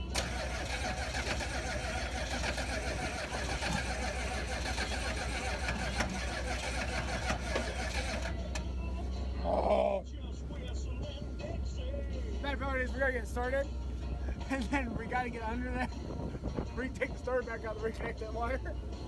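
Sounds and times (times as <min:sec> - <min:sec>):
diesel engine cranking on starter: 0:00.0 - 0:08.9.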